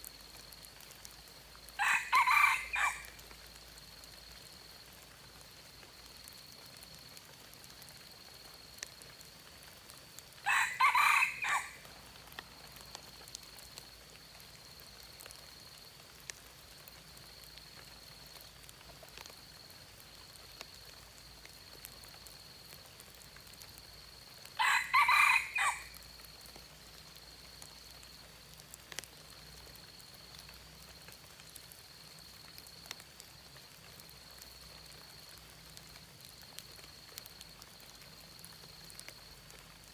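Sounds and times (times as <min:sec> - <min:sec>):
rooster crowing: 0:01.8 - 0:03.2, 0:10.4 - 0:11.8, 0:24.6 - 0:26.0
faint ticks: 0:03.1 - 0:10.4, 0:11.8 - 0:24.5, 0:25.8 - 0:39.9.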